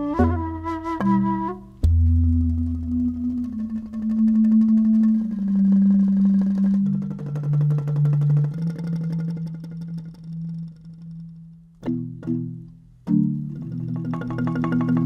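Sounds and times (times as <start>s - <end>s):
bamboo ensemble music: 0.0s - 15.0s
low held melody line: 0.0s - 15.0s
fast repeated xylophone strikes: 13.1s - 15.0s.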